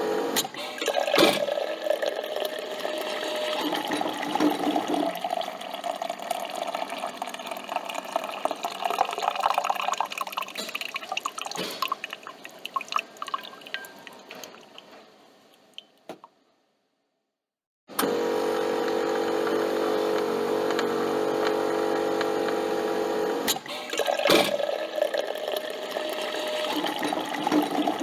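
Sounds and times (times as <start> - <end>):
coffee pouring into cup: 0.9 - 14.9, 24.0 - 28.0.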